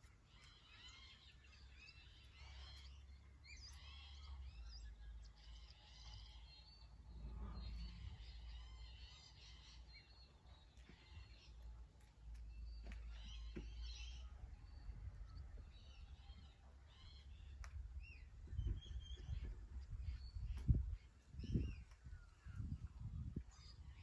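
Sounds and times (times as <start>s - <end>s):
faint birds chirping: 0.0s - 24.0s
low steady rumble: 0.0s - 24.0s.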